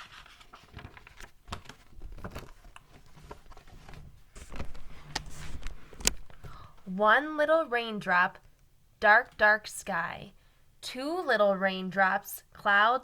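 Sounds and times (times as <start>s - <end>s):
book pages turning: 0.0s - 6.7s.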